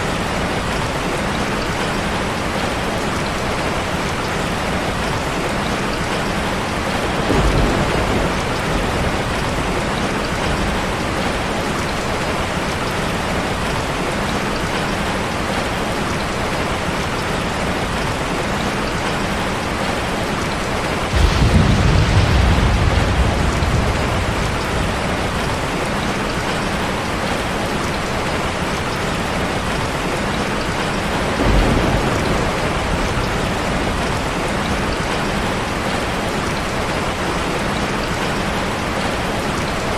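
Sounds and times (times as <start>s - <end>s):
steady rain: 0.0s - 39.9s
thunder rumbling: 6.1s - 13.8s, 20.7s - 37.3s.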